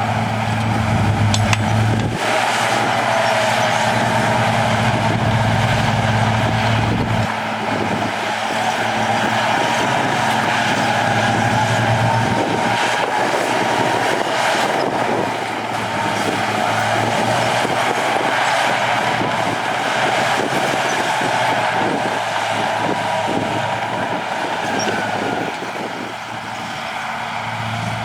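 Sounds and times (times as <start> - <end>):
diesel engine running: 0.0 - 28.0
steady machine whine: 0.0 - 28.0.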